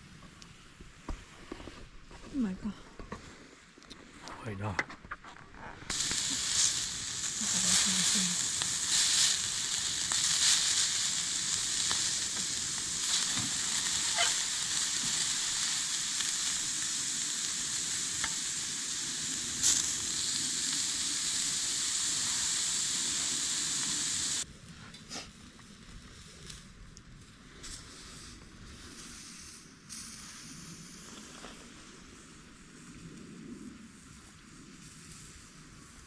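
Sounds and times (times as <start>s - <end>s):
food sizzling in hot oil: 5.9s - 24.4s.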